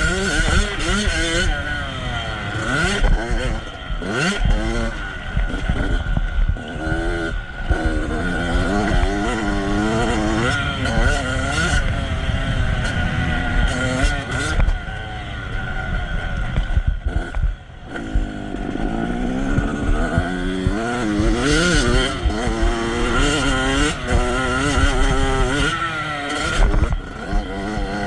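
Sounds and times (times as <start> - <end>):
motocross engine revving: 0.0 - 28.0.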